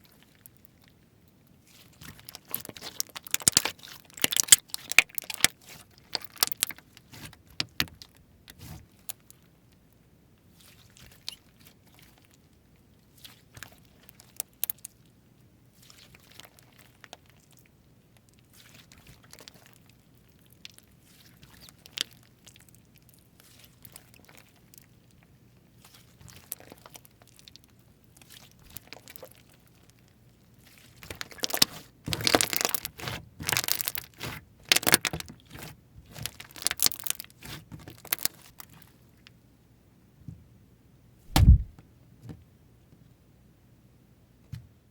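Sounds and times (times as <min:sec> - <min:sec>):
slime crackling: 0:01.8 - 0:07.3, 0:36.1 - 0:38.5
slime clicking and popping: 0:02.9 - 0:05.5.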